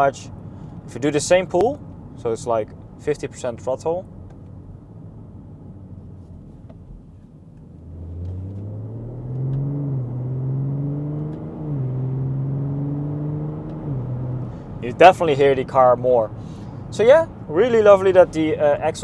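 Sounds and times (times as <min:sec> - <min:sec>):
car engine accelerating: 0:07.6 - 0:18.6.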